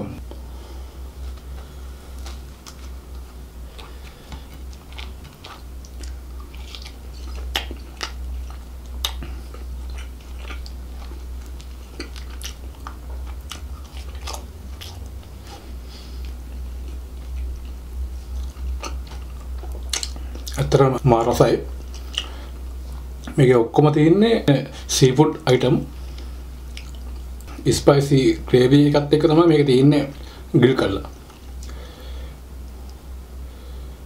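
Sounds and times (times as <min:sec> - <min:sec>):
steady low hum: 0:00.0 - 0:34.0
chewing with wet mouth clicks: 0:02.2 - 0:20.8, 0:21.8 - 0:23.4, 0:26.2 - 0:27.6.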